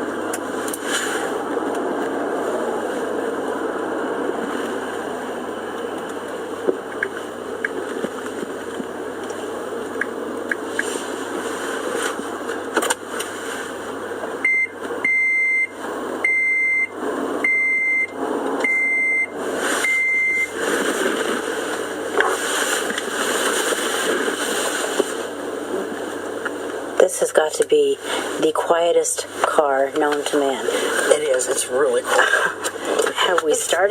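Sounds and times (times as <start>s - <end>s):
car interior road noise: 0.0s - 33.9s
car warning chime beeping: 14.4s - 20.6s.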